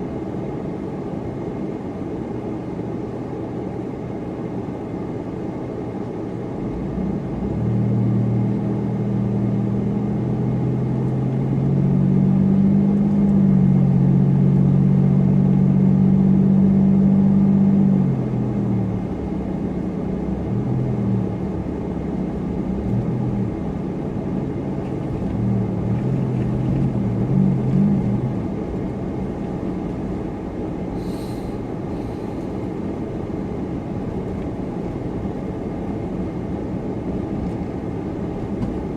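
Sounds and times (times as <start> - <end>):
road noise: 0.0 - 38.9
car engine revving: 24.7 - 30.2.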